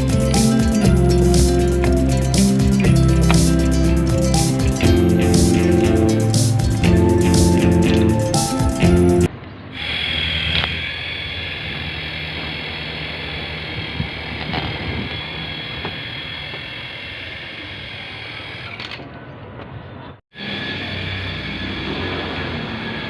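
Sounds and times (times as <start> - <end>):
toy helicopter motor whining: 0.0 - 4.8, 9.7 - 19.0, 20.4 - 23.0.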